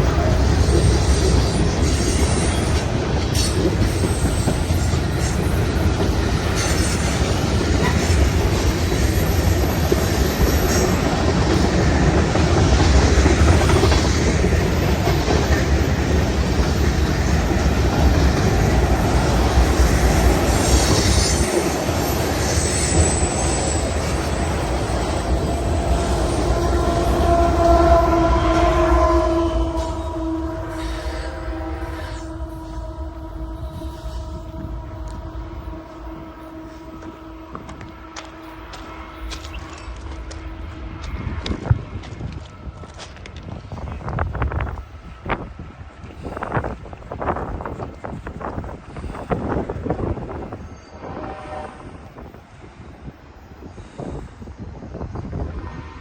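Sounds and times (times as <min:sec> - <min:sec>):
train horn: 0:00.0 - 0:02.8, 0:06.4 - 0:43.0, 0:49.9 - 0:52.4
freight train rumbling: 0:00.0 - 0:56.0
wheels squealing: 0:13.8 - 0:41.6.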